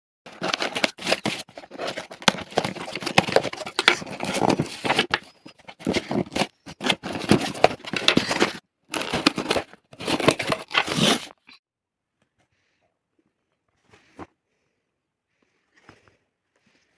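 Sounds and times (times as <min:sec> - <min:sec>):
cardboard and plastic crinkling: 0:00.3 - 0:11.4.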